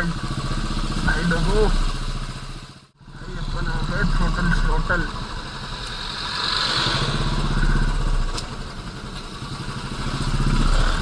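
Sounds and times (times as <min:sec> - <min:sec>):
motorcycle engine thumping: 0:07.0 - 0:11.0.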